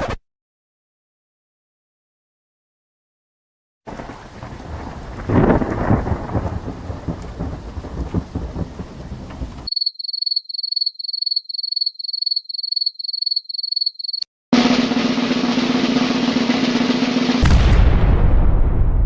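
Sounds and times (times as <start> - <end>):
loud thunder crack: 3.9 - 9.7, 15.5 - 19.0
rain: 3.9 - 9.7
thunder rumbling: 3.9 - 9.7, 15.6 - 19.0.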